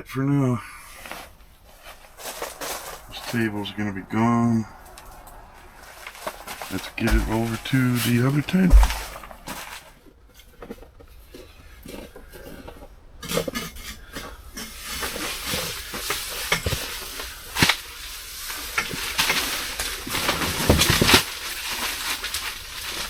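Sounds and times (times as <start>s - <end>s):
handling rustling: 0.8s - 17.7s
sharp knocks: 6.6s - 9.8s.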